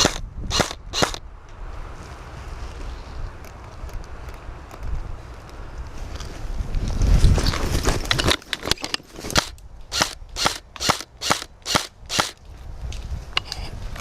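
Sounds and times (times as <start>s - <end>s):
airsoft rifle shots: 0.0s - 1.2s, 9.4s - 12.4s
wind rumble on microphone: 0.0s - 8.5s, 11.6s - 14.0s.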